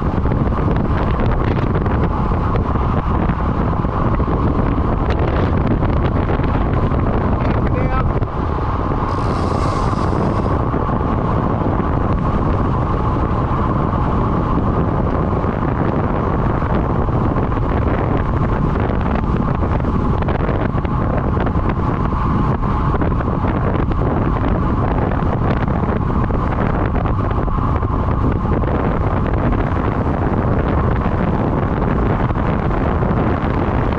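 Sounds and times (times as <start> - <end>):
wind buffeting microphone: 0.0 - 33.9
brief hiss: 9.1 - 10.5.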